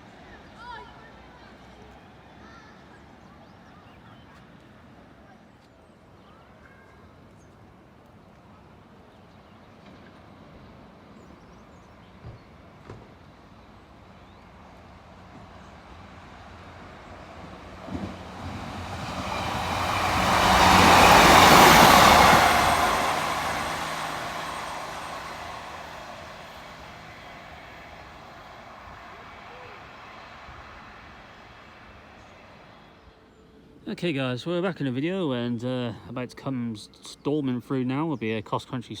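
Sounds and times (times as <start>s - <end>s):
diesel train passing: 7.6s - 36.0s.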